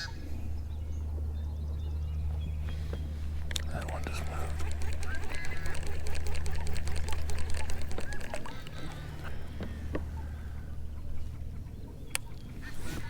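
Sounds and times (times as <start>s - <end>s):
birds chirping: 0.0s - 13.0s
low steady hum: 0.0s - 13.0s
fast clicking rattle: 3.4s - 9.6s
sharp ticks: 3.4s - 9.7s.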